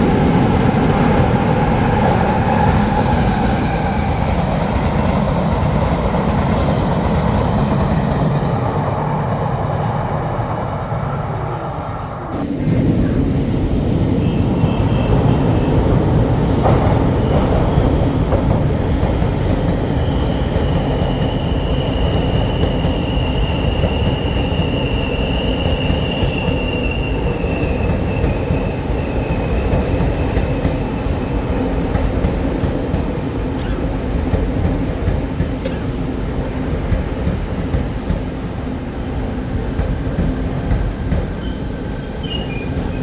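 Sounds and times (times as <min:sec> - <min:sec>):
train wheels rumbling on rails: 0:00.0 - 0:43.0
high wheel squeal: 0:20.0 - 0:28.5, 0:41.4 - 0:43.0.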